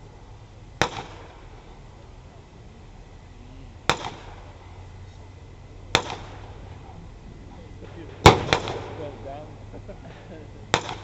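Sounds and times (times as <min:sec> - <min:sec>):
sharp explosive bangs: 0:00.8 - 0:02.0, 0:03.8 - 0:05.0, 0:05.9 - 0:11.0.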